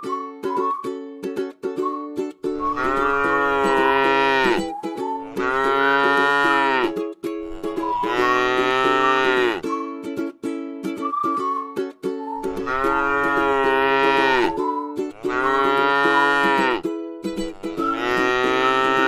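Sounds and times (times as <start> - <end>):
music with plucked strings: 0.0 - 19.0
cow mooing: 2.7 - 4.6, 5.2 - 9.6, 12.6 - 14.6, 15.2 - 16.8, 17.6 - 19.0.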